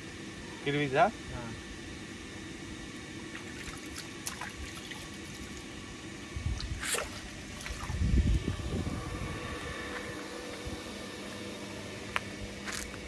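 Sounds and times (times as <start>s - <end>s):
low rumble: 7.6s - 10.9s.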